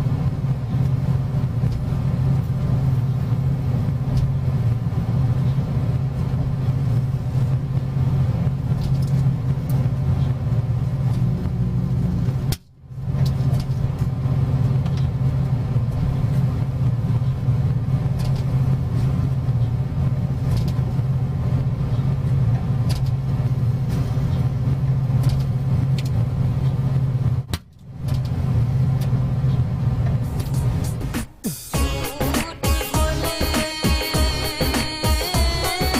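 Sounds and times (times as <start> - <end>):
microwave transformer mains hum: 0.0 - 35.9.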